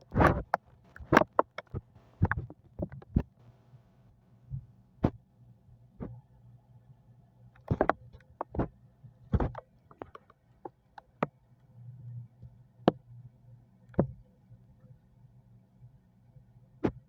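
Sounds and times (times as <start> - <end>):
sharp clicks and knocks: 0.1 - 3.4, 7.6 - 8.7, 9.3 - 11.3.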